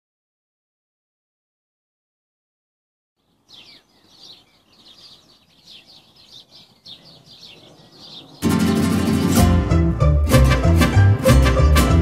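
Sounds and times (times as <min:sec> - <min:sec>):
birds chirping: 0:03.2 - 0:09.4
music with violin and guitar: 0:08.4 - 0:12.0.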